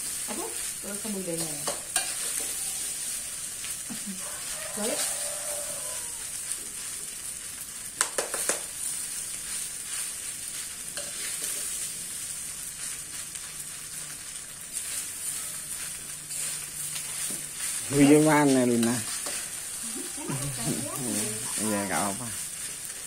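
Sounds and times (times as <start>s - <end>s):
fried rice sizzling in pan: 0.0s - 23.0s
metal spoon scraping pan: 1.4s - 3.2s, 11.0s - 11.8s, 14.8s - 21.6s
spoon clattering against pan: 8.0s - 8.7s.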